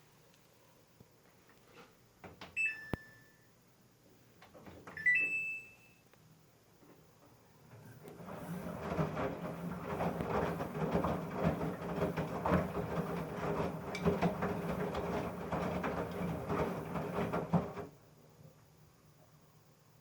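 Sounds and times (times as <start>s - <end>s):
washing machine knocking and rattling: 4.5s - 5.0s, 8.0s - 18.0s
washing machine drum humming: 7.6s - 18.0s.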